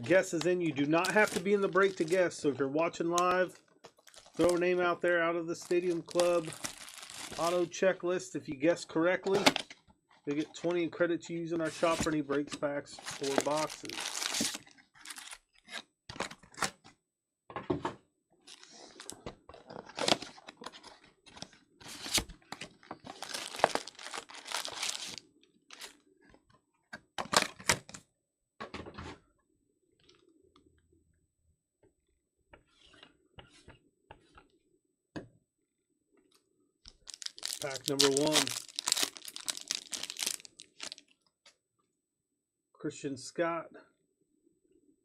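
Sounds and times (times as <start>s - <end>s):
plastic wrapping tearing and crinkling: 1.0s - 2.2s, 4.0s - 4.6s, 5.7s - 7.6s, 13.1s - 15.4s, 23.1s - 25.2s, 36.9s - 41.0s.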